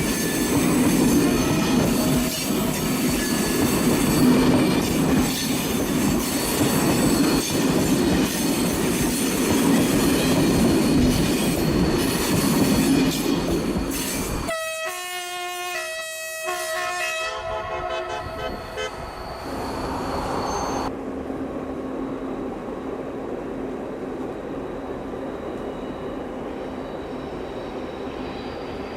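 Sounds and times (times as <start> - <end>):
locomotive horn blast: 14.5 - 19.1
diesel locomotives rumbling: 16.8 - 28.9.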